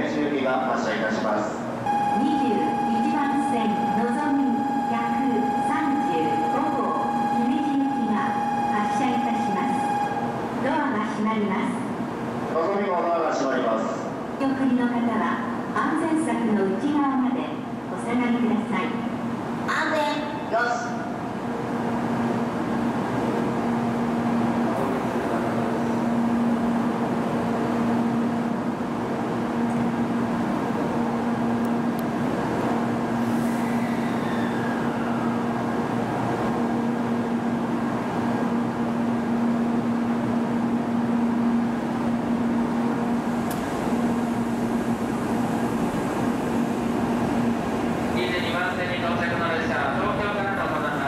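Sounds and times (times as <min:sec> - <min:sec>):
electrical hum and blower noise: 0:00.0 - 0:51.0
train pulling away: 0:30.2 - 0:37.9.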